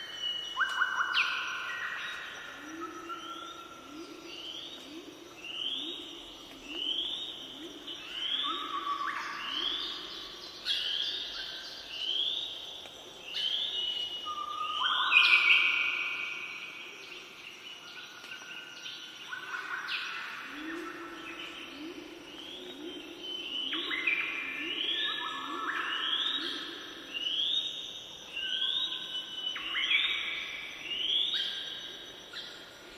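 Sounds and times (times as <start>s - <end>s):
songbird singing: 0.0s - 32.9s.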